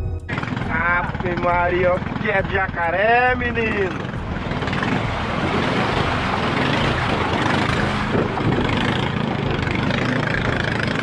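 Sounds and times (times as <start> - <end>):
motor engine running: 0.0 - 11.0
broad rushing noise: 3.8 - 10.8.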